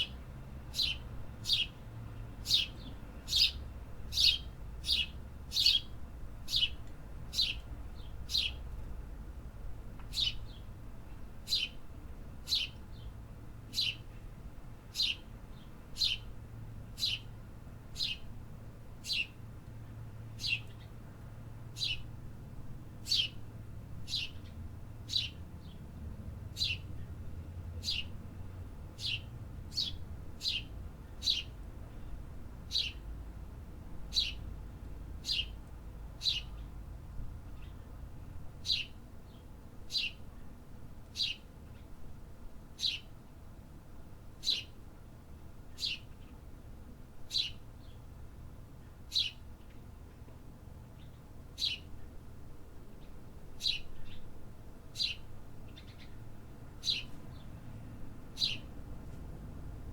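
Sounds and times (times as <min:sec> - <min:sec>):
distant city rumble: 0:00.0 - 0:59.9
songbird chirping: 0:02.4 - 0:08.6, 0:24.1 - 0:25.8, 0:36.2 - 0:36.7, 0:49.1 - 0:49.8, 0:53.0 - 0:54.3, 0:55.0 - 0:56.2, 0:56.8 - 0:57.6, 0:58.3 - 0:58.8.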